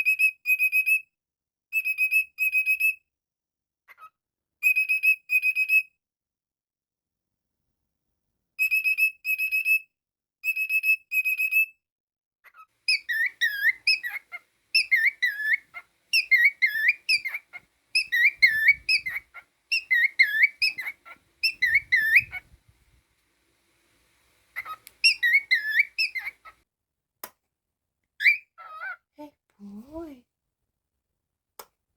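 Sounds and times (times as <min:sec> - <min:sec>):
cockatiel whistling: 0:12.9 - 0:22.7, 0:24.4 - 0:26.6.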